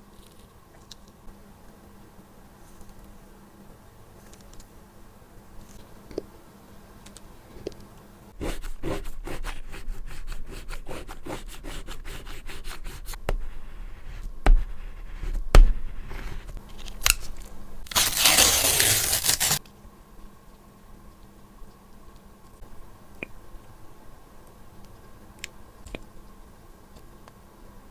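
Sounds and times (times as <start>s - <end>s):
scratchy hiss: 8.3s - 19.6s.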